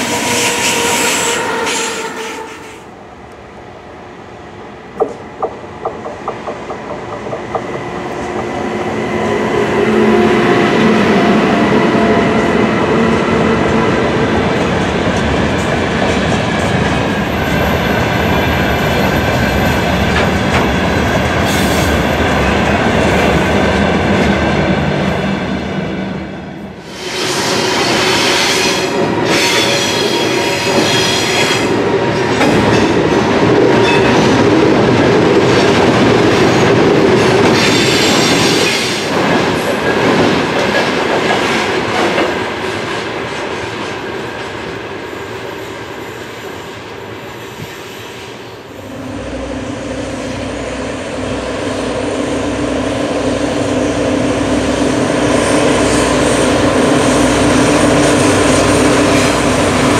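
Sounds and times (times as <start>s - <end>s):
diesel locomotive engines throbbing: 48.6s - 59.9s.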